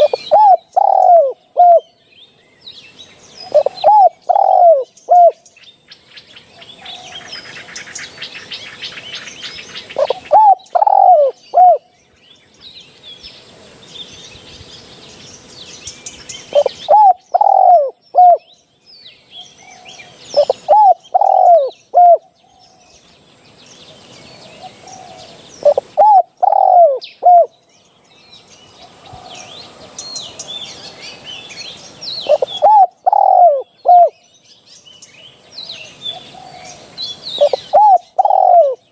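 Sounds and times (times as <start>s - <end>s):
dove cooing: 0.0s - 1.9s, 3.4s - 5.4s, 9.8s - 11.9s, 16.4s - 18.5s, 19.8s - 22.3s, 24.4s - 27.5s, 32.2s - 34.2s, 35.9s - 38.9s
small birds chirping: 0.0s - 38.9s.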